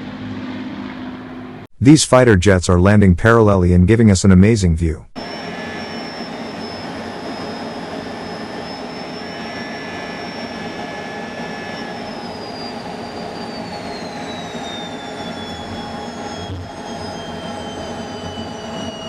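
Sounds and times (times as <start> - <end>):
high jet engine whine: 0.0 - 1.7, 5.2 - 19.0
jet engines roaring: 5.2 - 19.0.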